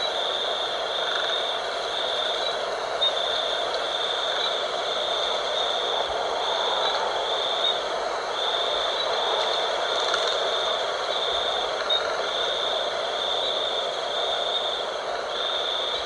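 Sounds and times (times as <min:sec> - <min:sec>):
high insect trill: 0:00.0 - 0:16.0.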